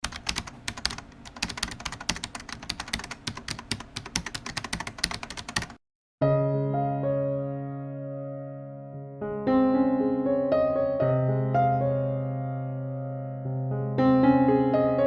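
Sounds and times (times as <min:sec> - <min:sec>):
computer keyboard typing: 0:00.0 - 0:05.8
soft electric piano music: 0:00.1 - 0:15.0.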